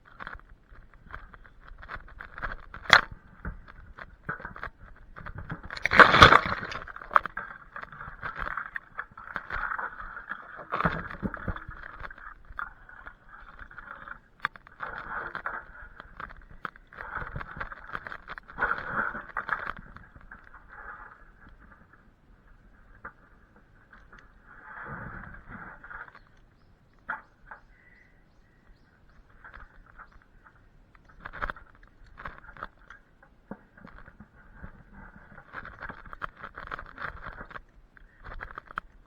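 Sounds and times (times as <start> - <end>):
branches scraping and rustling: 5.7 - 7.4.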